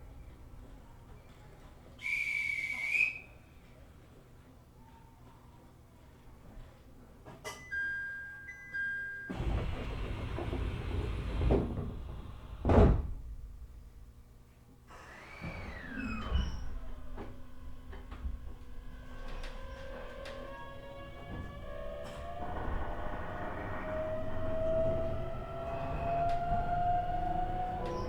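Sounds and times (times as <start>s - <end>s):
train inverter whine: 9.3s - 13.1s, 14.9s - 28.0s
train doors sliding shut: 9.3s - 13.8s, 14.9s - 28.0s
door thump: 9.8s - 13.3s.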